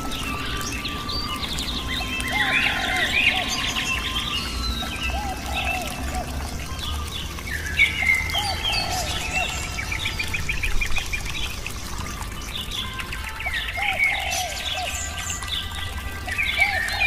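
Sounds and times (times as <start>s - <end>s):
bird trill: 0.0s - 11.1s
birds chirping and calling: 0.0s - 17.0s.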